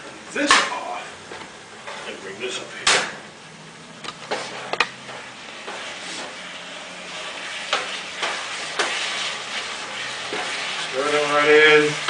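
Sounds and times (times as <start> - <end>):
food sizzling in a pot: 0.1 - 12.0.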